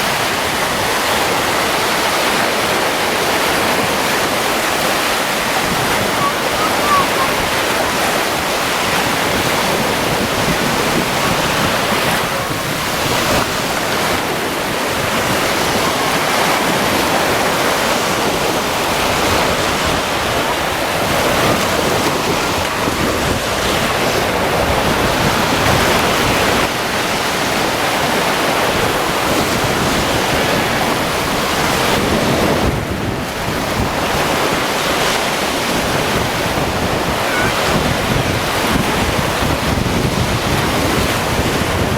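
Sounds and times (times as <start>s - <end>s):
waves washing onto beach: 0.0s - 41.9s
wind on microphone: 0.0s - 41.9s.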